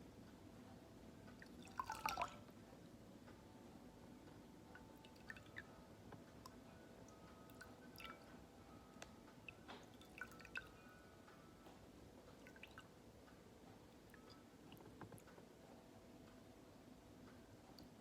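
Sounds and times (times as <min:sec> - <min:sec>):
water drips: 0:01.3 - 0:02.6, 0:04.8 - 0:05.7, 0:06.3 - 0:08.4, 0:09.0 - 0:10.8, 0:12.3 - 0:13.0, 0:13.8 - 0:15.3.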